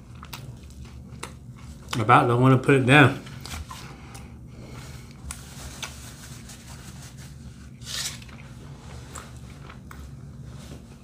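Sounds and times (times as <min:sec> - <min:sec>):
person chewing: 0:00.0 - 0:02.0.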